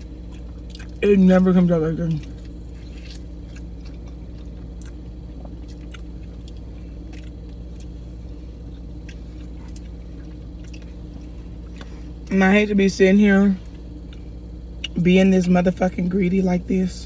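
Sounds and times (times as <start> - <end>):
wet chewing sounds: 0.0 - 1.1, 2.1 - 12.3, 13.6 - 15.0
steady low hum: 0.0 - 17.0.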